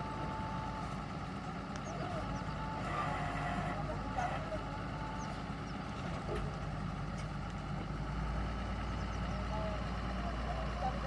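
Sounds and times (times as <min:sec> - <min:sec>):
drilling rig engine humming: 0:00.0 - 0:11.0.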